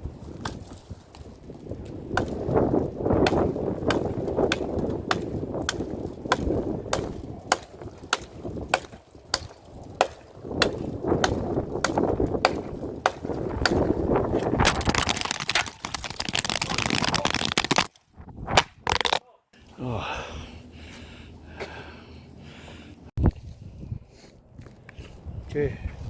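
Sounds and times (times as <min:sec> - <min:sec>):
hand saw cutting branch: 0:03.2 - 0:13.9.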